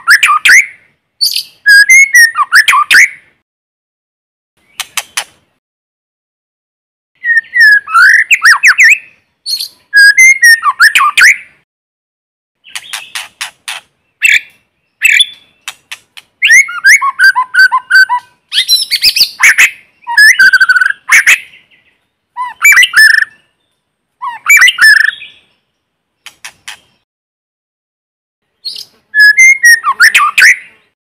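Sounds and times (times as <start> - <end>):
bird singing whistles and clicks: 0.0 - 3.1, 4.6 - 5.4, 7.2 - 11.4, 12.6 - 21.6, 22.4 - 23.4, 24.2 - 25.4, 26.2 - 27.0, 28.6 - 30.6.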